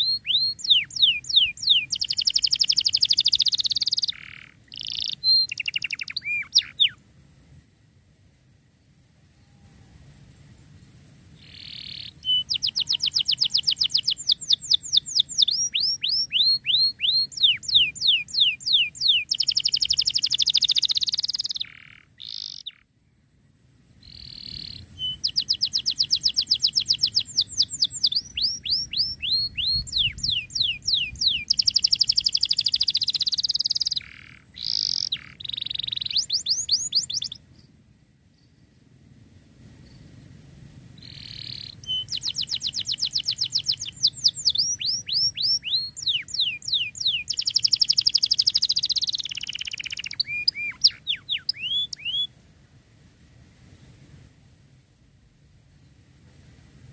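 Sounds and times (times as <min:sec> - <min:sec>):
canary singing trills: 0:00.0 - 0:07.0, 0:11.4 - 0:22.9, 0:24.0 - 0:37.4, 0:41.0 - 0:52.3.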